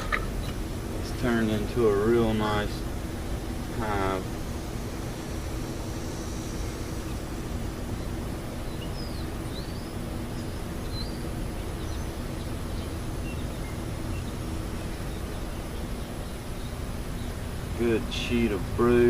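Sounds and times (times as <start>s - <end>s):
faint hum: 0.0s - 19.0s
bird chirps: 8.0s - 17.4s.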